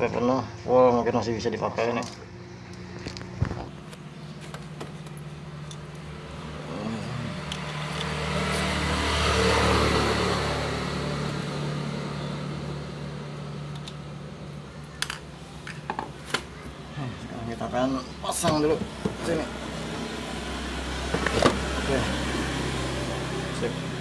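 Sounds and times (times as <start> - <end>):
motor vehicle passing by: 2.3 - 14.7, 17.8 - 24.0.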